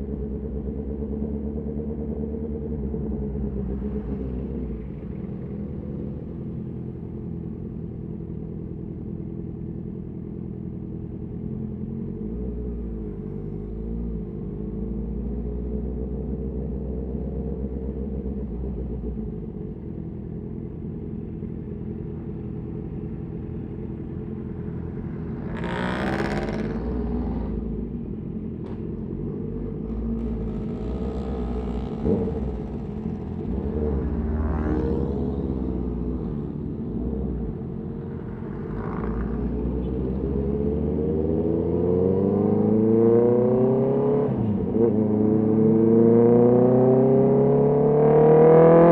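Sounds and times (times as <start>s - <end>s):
motorcycle engine accelerating: 22.4s - 48.9s.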